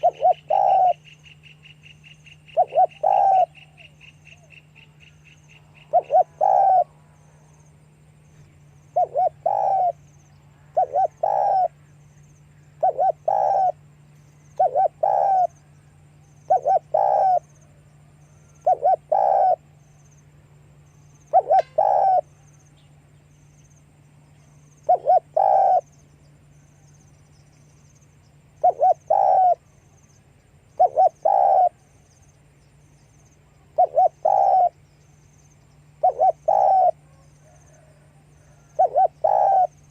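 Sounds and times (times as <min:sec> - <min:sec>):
dove cooing: 0:00.0 - 0:01.2, 0:02.4 - 0:04.8, 0:05.6 - 0:07.5, 0:08.3 - 0:12.0, 0:12.6 - 0:19.7, 0:21.2 - 0:22.5, 0:24.6 - 0:25.9, 0:28.5 - 0:29.6, 0:30.7 - 0:31.9, 0:33.6 - 0:34.8, 0:35.9 - 0:39.9
steady low hum: 0:00.0 - 0:39.9.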